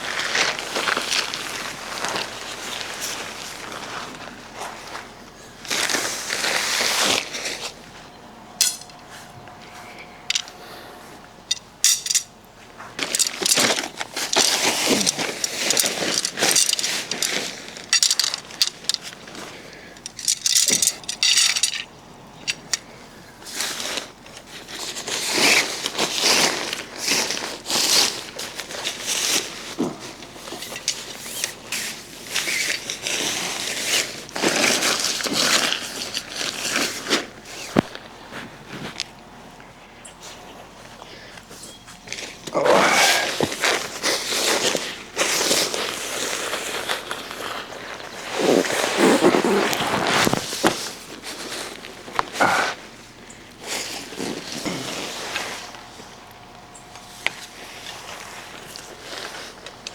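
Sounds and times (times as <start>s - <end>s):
objects clinking and clattering: 8.6s - 9.0s, 10.3s - 10.6s, 11.5s - 12.3s, 13.0s - 22.8s.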